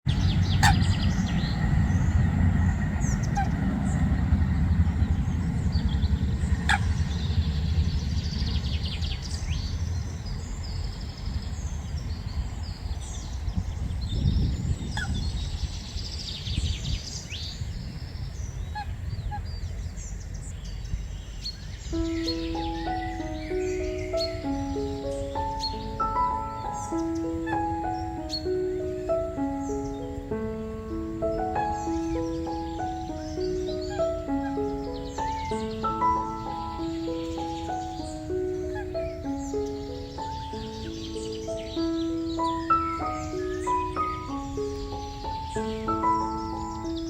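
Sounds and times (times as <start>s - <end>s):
birds chirping and calling: 0.1s - 47.0s
steady low rumble: 0.1s - 47.0s
music: 21.9s - 47.0s.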